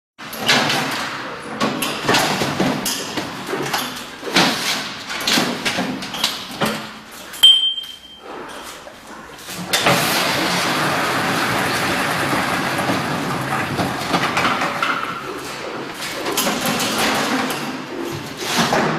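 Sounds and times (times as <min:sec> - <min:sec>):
metal machine clanks and knocks: 0:00.2 - 0:08.1
short metallic ringing tone: 0:07.4 - 0:08.2.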